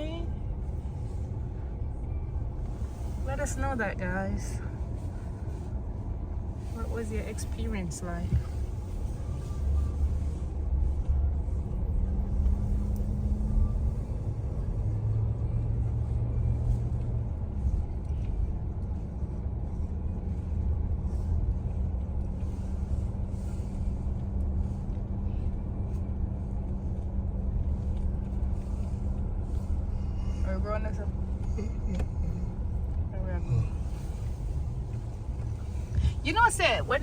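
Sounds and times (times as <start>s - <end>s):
engine and tyres rumbling: 0.0s - 37.0s
faint steady hum: 0.0s - 37.0s.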